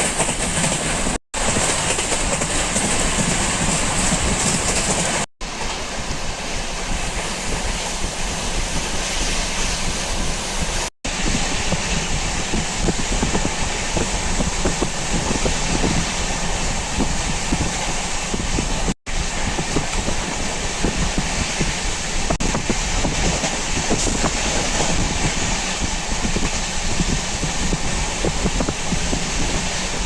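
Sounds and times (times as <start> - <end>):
wheels knocking on rails: 0.0 - 5.8
train wind and rumble: 0.0 - 30.0.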